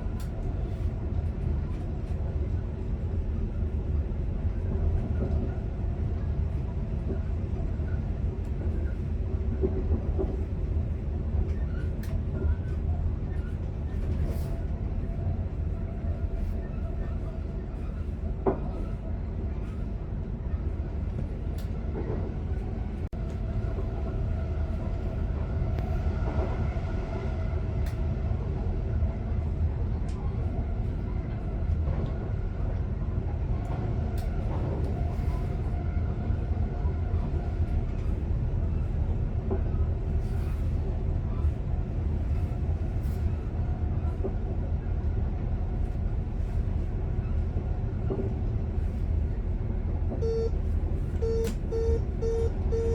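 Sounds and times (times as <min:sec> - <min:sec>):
electric train low rumble: 0:00.0 - 0:52.9
faint steady tones: 0:50.2 - 0:52.9.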